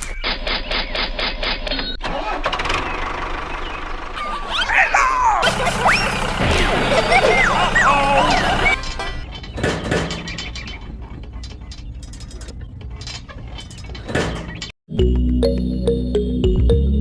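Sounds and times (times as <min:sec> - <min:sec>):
high squeaky chirps: 0:06.9 - 0:14.7.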